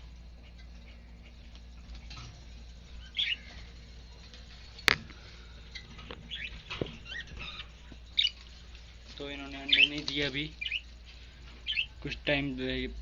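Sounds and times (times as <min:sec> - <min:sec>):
birds chirping: 0:00.0 - 0:13.0
birds scratching and shuffling: 0:00.0 - 0:13.0.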